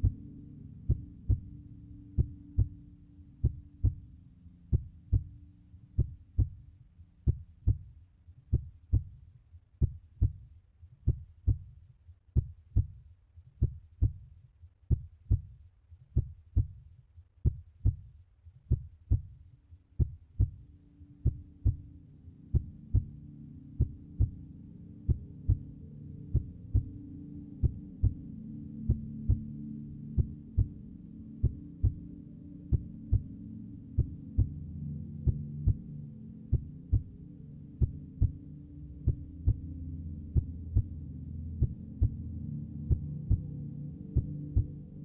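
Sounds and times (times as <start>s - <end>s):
low drone: 0.0s - 7.3s, 20.6s - 45.0s.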